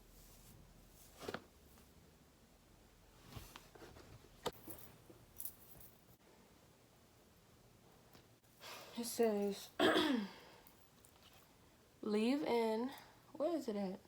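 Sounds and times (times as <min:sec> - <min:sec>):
faint handling clicks and rustles: 0:03.2 - 0:06.2, 0:10.6 - 0:11.6.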